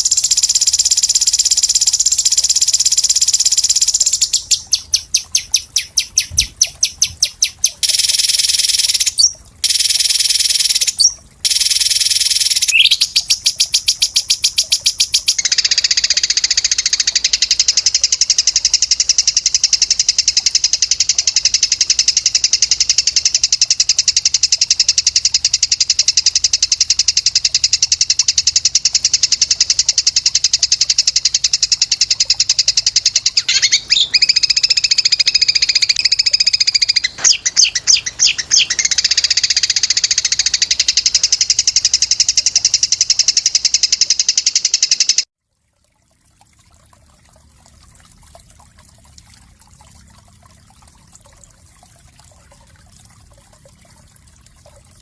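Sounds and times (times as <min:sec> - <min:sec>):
quick bird chirps: 0:00.0 - 0:17.6, 0:33.2 - 0:41.2
songbird high-pitched trill: 0:00.0 - 0:45.3.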